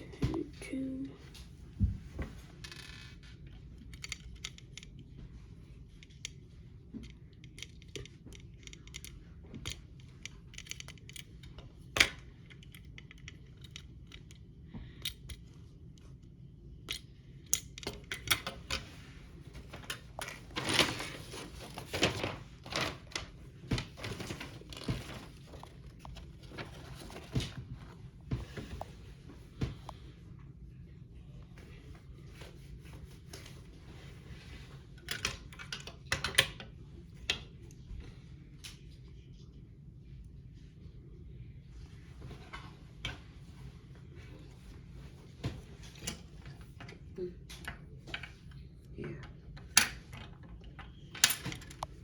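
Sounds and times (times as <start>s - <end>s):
plastic parts clicking and tapping: 3.8s - 5.0s, 7.0s - 14.4s
rustling: 18.8s - 29.1s.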